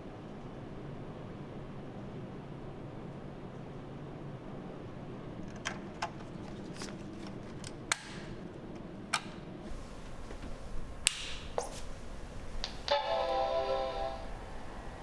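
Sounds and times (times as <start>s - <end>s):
sharp clicks and taps: 9.7s - 13.3s
low steady hum: 9.7s - 15.0s.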